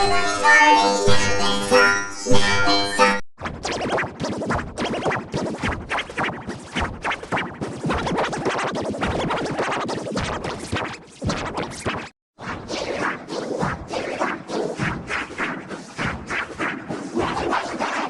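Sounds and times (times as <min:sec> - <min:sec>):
stuttering processed audio: 0:03.4 - 0:12.1.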